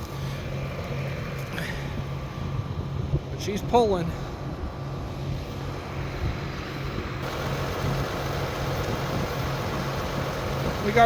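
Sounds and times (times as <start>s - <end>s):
tractor engine under heavy load: 4.6s - 11.0s.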